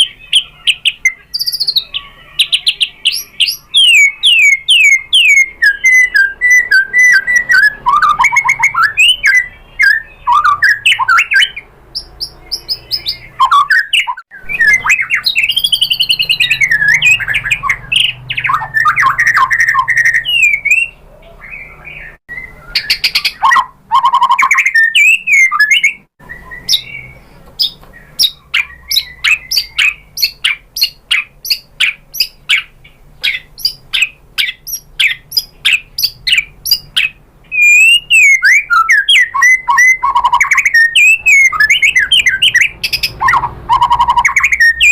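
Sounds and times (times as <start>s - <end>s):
bird sharp ticking notes: 0.0s - 21.0s, 21.6s - 44.9s
bird singing whistles and trills: 0.0s - 44.9s.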